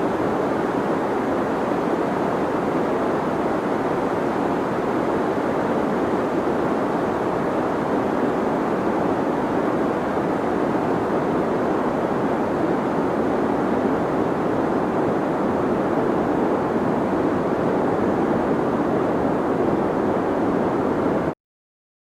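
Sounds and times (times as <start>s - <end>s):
deep white noise: 0.0s - 21.3s.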